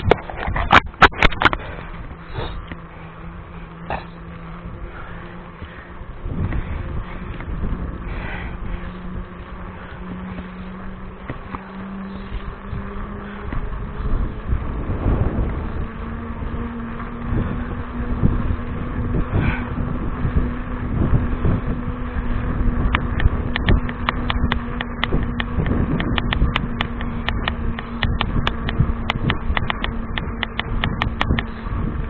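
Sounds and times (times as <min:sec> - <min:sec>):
mountain bike rumble and rattle: 0:00.0 - 0:32.0
steady low hum: 0:00.0 - 0:32.0
wind buffeting microphone: 0:00.0 - 0:32.0
sharp clicks: 0:22.9 - 0:31.5.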